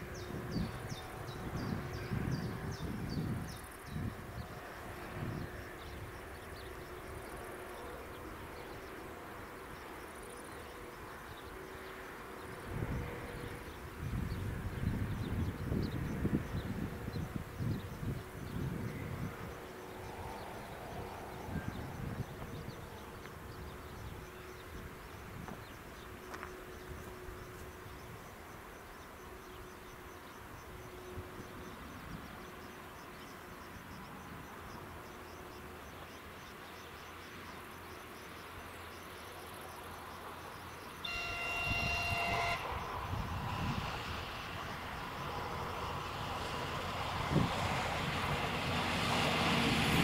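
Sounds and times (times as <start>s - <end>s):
train rumbling: 0.0s - 36.7s, 39.2s - 50.0s
train horn: 41.0s - 44.6s.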